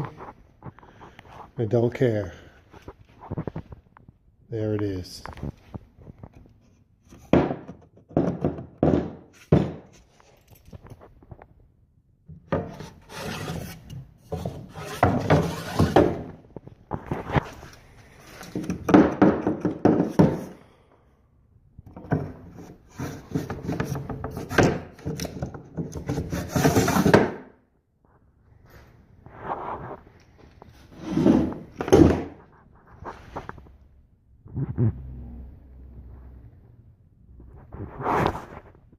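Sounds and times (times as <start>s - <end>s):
knocks on wood: 7.3s - 9.9s, 18.8s - 20.5s
wood scraping and rubbing: 12.5s - 19.0s, 22.1s - 27.4s, 30.7s - 33.6s.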